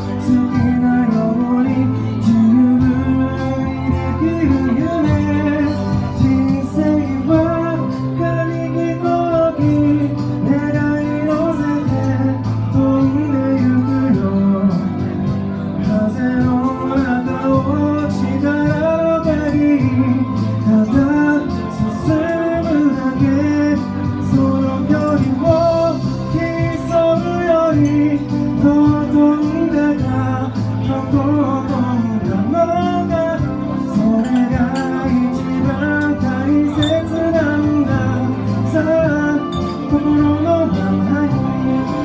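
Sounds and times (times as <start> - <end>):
bass: 0.0 - 42.0
keyboard chords: 0.0 - 42.0
live pop band: 0.0 - 42.0
person singing: 0.0 - 42.0.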